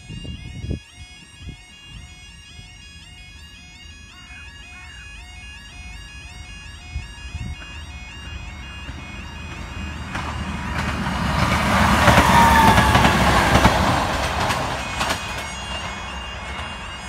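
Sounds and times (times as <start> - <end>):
train passing: 0.0 - 17.0
wheels clicking on track: 3.9 - 17.0.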